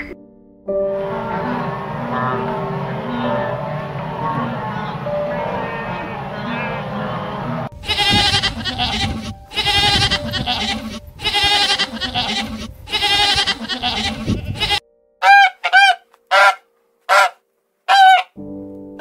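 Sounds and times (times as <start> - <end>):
geese honking: 1.0 - 18.4
goats bleating: 7.8 - 14.8.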